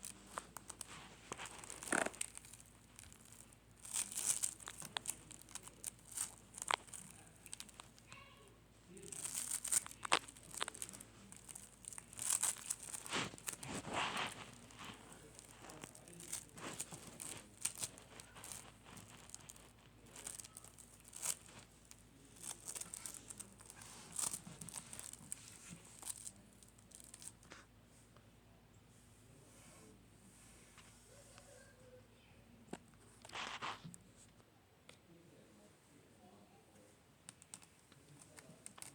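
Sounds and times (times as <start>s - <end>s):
slime squeezed by hand crackling: 0.0s - 27.4s.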